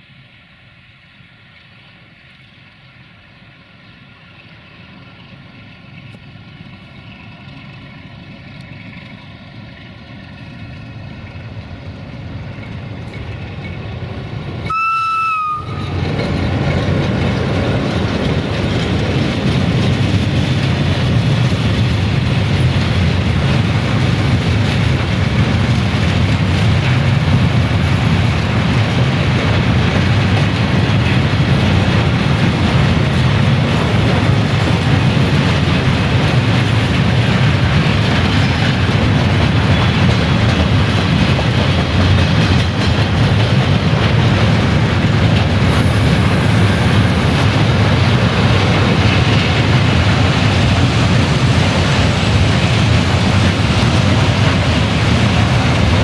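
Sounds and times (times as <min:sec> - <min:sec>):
train passing close by: 0:00.0 - 0:56.0
train horn blast: 0:14.7 - 0:16.0.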